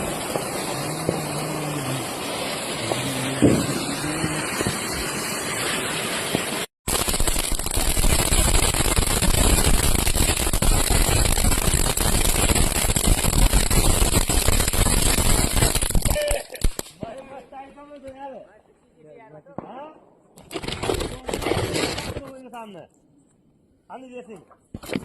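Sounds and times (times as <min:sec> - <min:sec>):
firecracker crackling hiss: 0:00.0 - 0:17.0.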